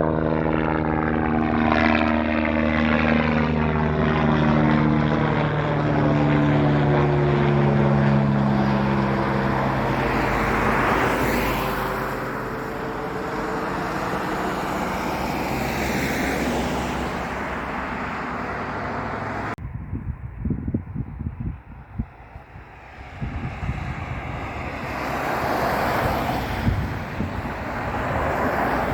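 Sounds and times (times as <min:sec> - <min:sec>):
jet engines roaring: 0:00.0 - 0:19.6, 0:21.6 - 0:28.9
wind buffeting microphone: 0:16.5 - 0:28.9.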